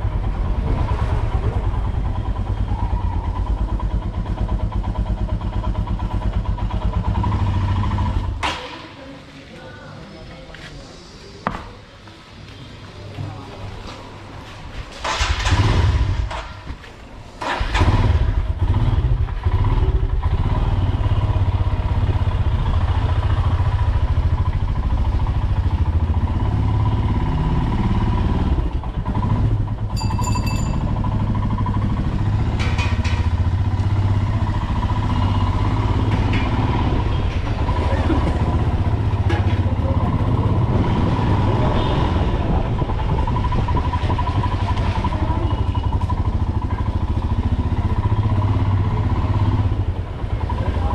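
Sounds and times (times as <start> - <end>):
motorcycle engine revving: 0.0 - 8.4, 15.0 - 16.4, 17.4 - 50.9.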